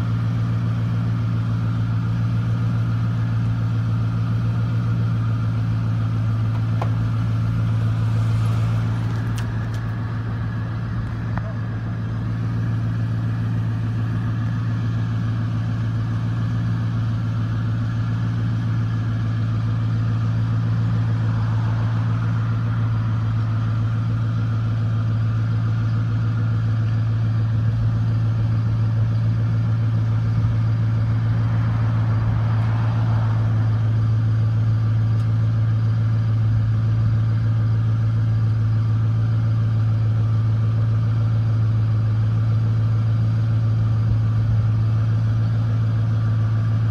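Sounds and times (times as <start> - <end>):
truck engine idling: 0.0 - 46.9.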